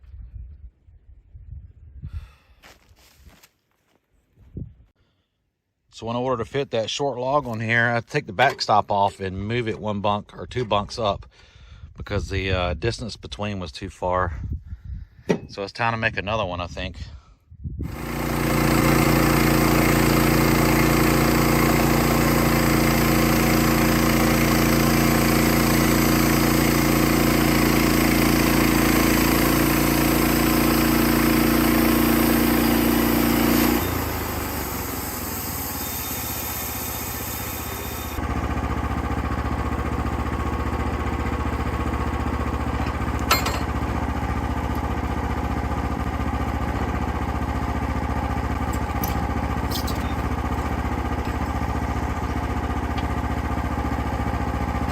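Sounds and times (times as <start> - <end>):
engine running: 17.8 - 54.9.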